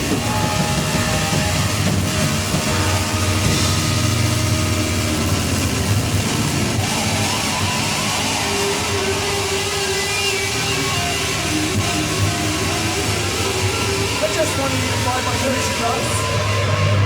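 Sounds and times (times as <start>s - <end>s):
held note: 0.0s - 12.3s
heavy rock band playing: 0.0s - 17.0s.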